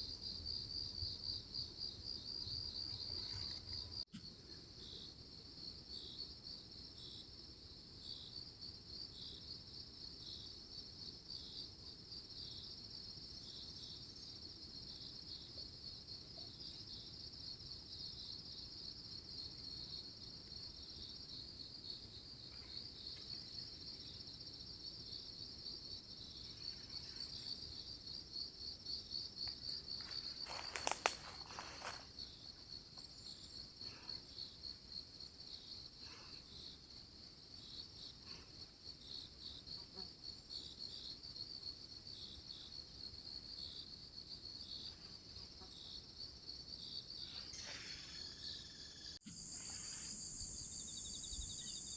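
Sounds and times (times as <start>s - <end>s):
pulsing insect chirps: 46.9s - 51.9s
insect high trill: 47.2s - 51.9s.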